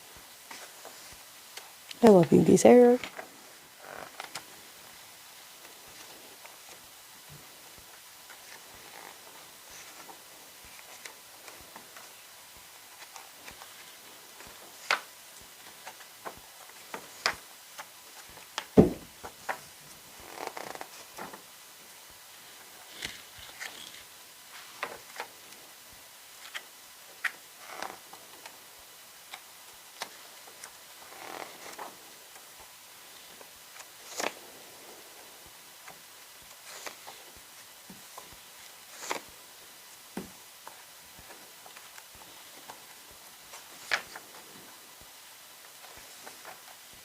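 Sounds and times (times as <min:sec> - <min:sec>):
paper rustling: 0:03.0 - 0:04.5, 0:12.8 - 0:21.5, 0:22.8 - 0:25.4, 0:29.3 - 0:32.5, 0:33.4 - 0:34.5, 0:35.8 - 0:39.4, 0:40.6 - 0:44.5
loud thump: 0:18.8 - 0:19.1.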